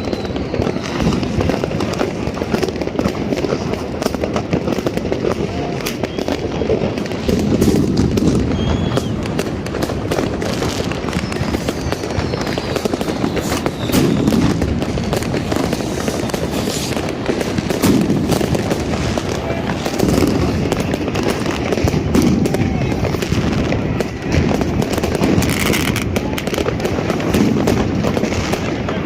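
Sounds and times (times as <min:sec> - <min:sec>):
firework whistles gliding down: 0:00.0 - 0:28.7
fireworks bangs and crackles: 0:00.0 - 0:29.0.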